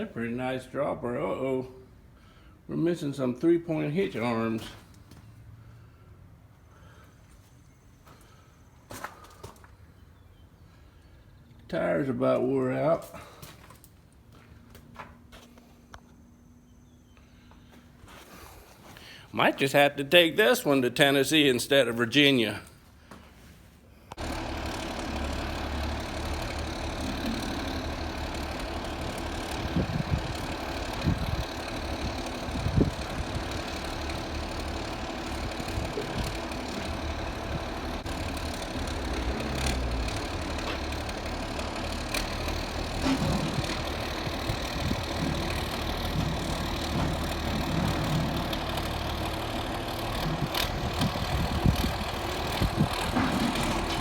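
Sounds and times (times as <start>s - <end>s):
engine running at low speed: 24.1s - 54.0s
knocks and clunks: 42.1s - 48.7s, 50.4s - 54.0s.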